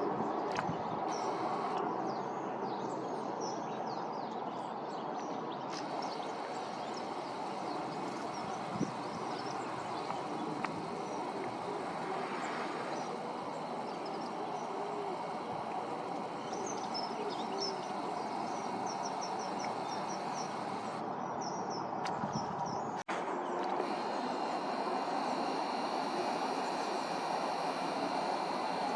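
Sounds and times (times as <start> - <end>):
small birds chirping: 0.5 - 1.8, 5.6 - 21.0, 23.8 - 28.9.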